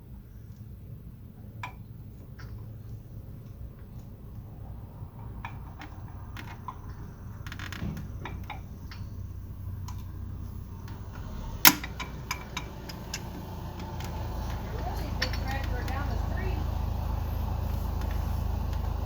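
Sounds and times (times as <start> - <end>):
low steady hum: 0.0 - 19.0
pliers clicking on metal clamp: 11.6 - 13.9.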